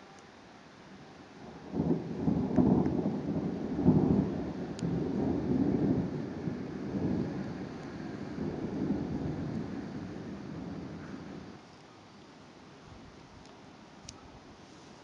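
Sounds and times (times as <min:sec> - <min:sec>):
thunder rolling: 0:01.5 - 0:11.6.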